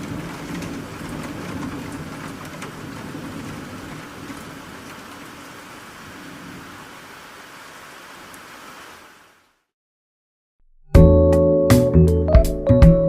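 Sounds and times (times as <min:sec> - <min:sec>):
raindrops ticking close by: 0:00.0 - 0:08.9
rain hissing: 0:00.0 - 0:09.7.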